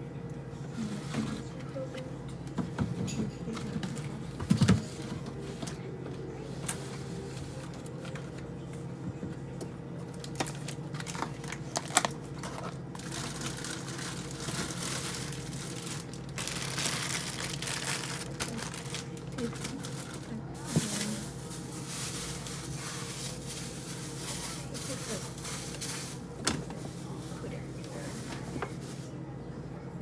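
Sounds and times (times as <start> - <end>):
steady low hum: 0.0 - 30.0
packaging crinkling: 10.1 - 29.1.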